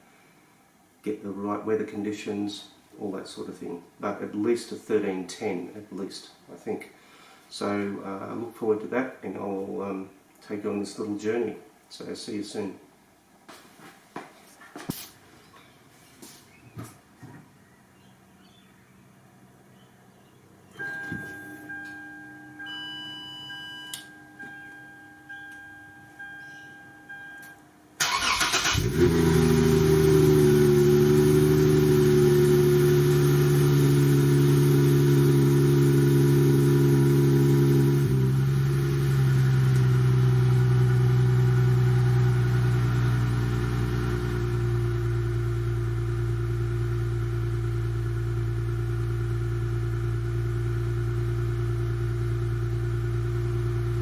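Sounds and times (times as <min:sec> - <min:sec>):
electronic chimes: 0:20.7 - 0:27.8
engine cranking: 0:28.0 - 0:29.5
car engine idling: 0:28.0 - 0:54.0.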